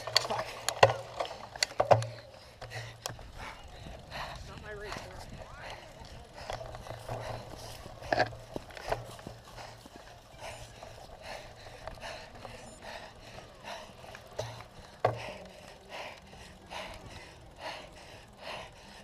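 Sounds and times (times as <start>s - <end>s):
bike rattling over rough ground: 0.0s - 19.0s.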